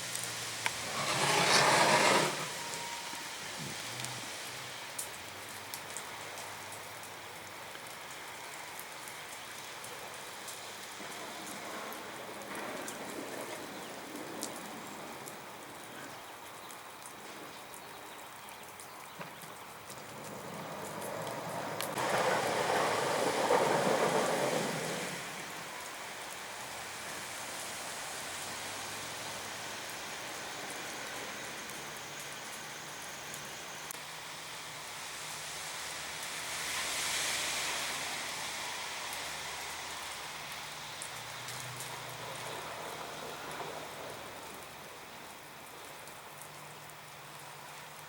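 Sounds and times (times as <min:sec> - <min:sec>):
rushing noise: 0:00.0 - 0:05.0, 0:20.0 - 0:31.0
freezing rain hissing: 0:00.0 - 0:48.0.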